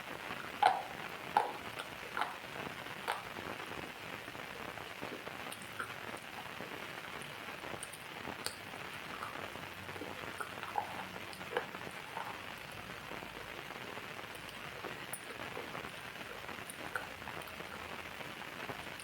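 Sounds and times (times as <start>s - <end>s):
single raindrops: 0.0s - 19.0s
steady rain: 0.0s - 19.0s.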